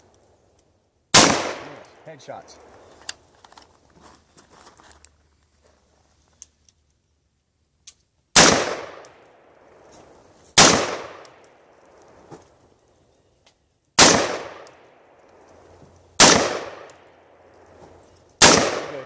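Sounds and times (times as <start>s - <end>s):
pistol shots with echo: 1.1s - 2.0s, 8.4s - 9.5s, 10.6s - 11.4s, 14.0s - 14.9s, 16.2s - 17.0s, 18.4s - 19.0s.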